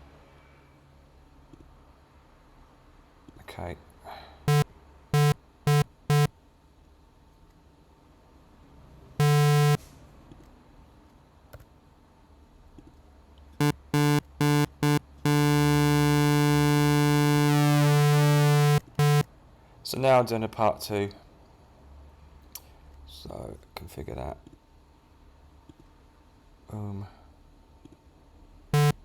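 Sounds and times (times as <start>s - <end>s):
synthesizer square-wave notes: 5.2s - 6.3s, 9.2s - 9.8s, 13.6s - 19.2s, 28.8s - 29.0s.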